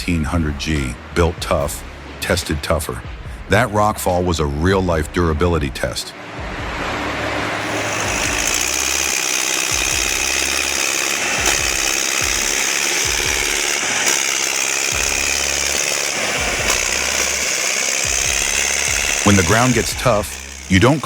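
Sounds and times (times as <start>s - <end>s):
pulsing low rumble: 6.4s - 8.9s.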